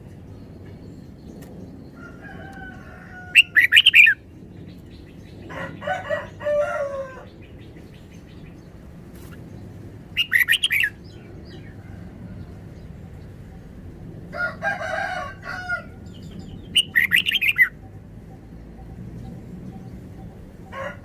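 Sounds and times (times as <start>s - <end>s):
rooster crowing: 2.0s - 4.0s, 5.5s - 7.3s, 14.3s - 16.1s, 20.6s - 21.0s
bird chattering song: 3.4s - 5.8s, 7.2s - 11.8s, 16.1s - 20.7s.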